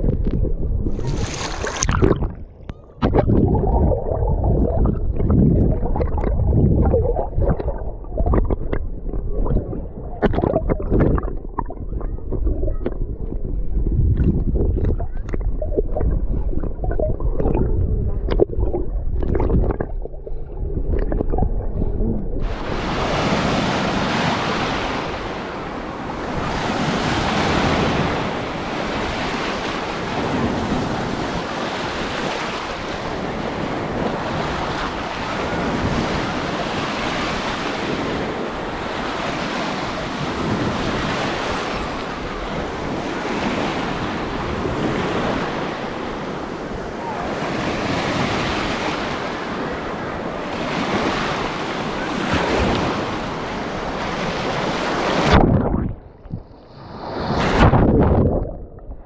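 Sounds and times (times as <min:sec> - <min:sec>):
muffled water sloshing: 0:00.0 - 0:59.0
wind buffeting microphone: 0:00.0 - 0:59.0
sea surf rushing: 0:00.9 - 0:02.4, 0:22.4 - 0:55.9, 0:56.5 - 0:58.4.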